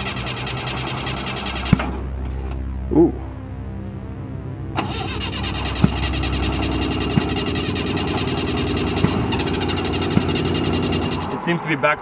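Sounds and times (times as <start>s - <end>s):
car engine cranking on starter: 0.0s - 2.0s, 4.8s - 11.4s
sharp backfire pops: 1.4s - 2.0s, 7.0s - 11.3s.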